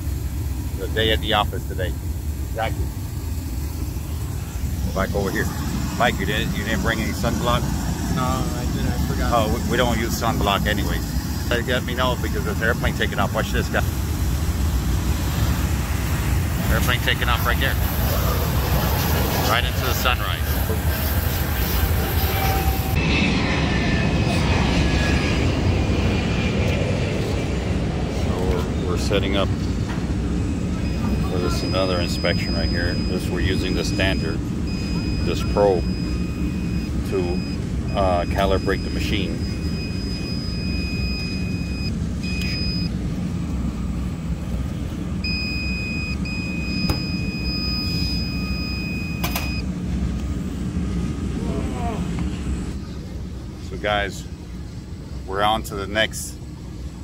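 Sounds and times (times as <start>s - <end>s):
low rumble: 0.0s - 47.8s
jet airliner taking off: 0.0s - 57.0s
high steady beep: 30.8s - 43.0s, 45.2s - 49.7s.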